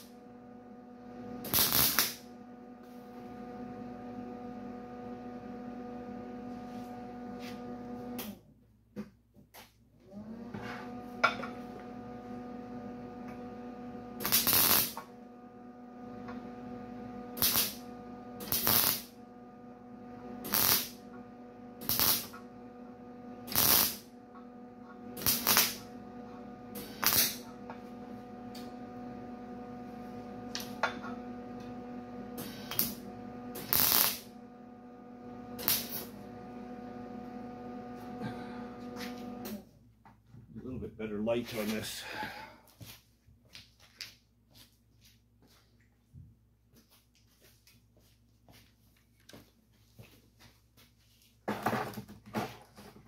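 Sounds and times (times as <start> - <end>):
welder electrical hum: 0.0 - 8.6, 9.6 - 45.7
welding arc crackling: 1.4 - 2.3, 14.2 - 15.1, 17.4 - 19.2, 20.4 - 21.1, 21.8 - 22.4, 23.4 - 24.1, 25.2 - 25.9, 26.7 - 27.8, 32.4 - 34.3, 35.6 - 36.1.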